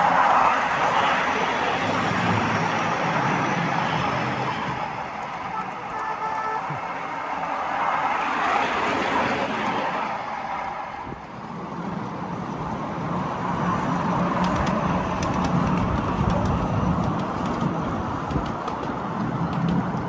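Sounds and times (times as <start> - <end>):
miniature train rolling rumble: 6.8 - 20.0.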